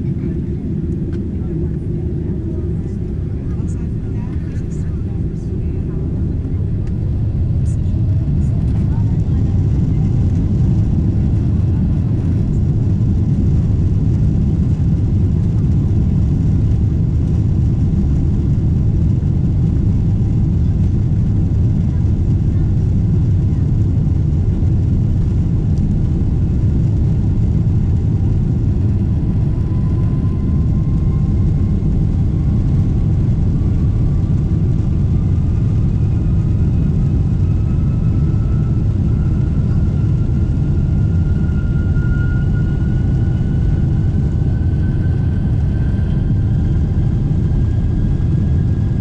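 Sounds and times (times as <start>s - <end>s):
jet engines rumbling and whining: 0.0s - 49.0s.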